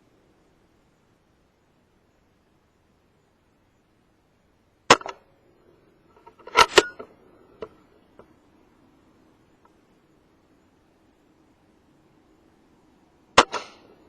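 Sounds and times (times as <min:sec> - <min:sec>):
air rifle firing: 0:13.4 - 0:13.8.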